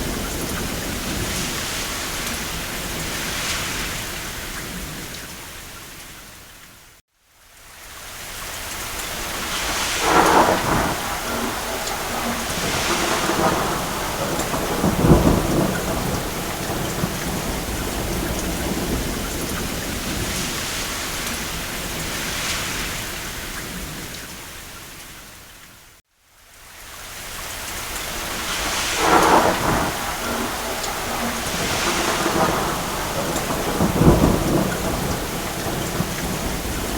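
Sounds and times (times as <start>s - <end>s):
distant thunder rolling: 0.0s - 5.2s, 9.2s - 24.2s, 28.1s - 36.9s
rain on a roof: 0.0s - 36.9s.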